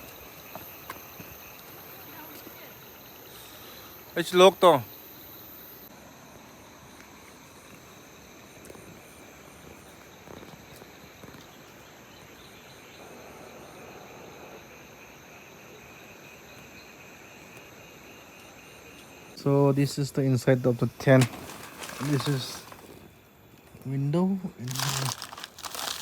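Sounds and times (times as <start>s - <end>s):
insects trilling: 0.0s - 26.0s
flowing water hiss: 19.4s - 23.1s.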